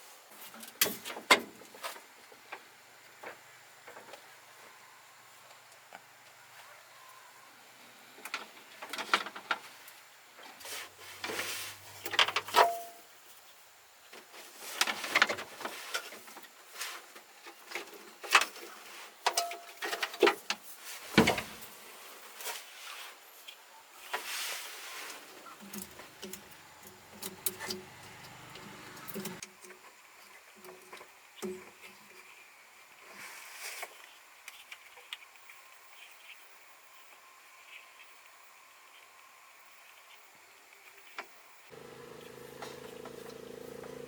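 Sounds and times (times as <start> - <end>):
hand tools clicking and scraping: 25.4 - 29.4.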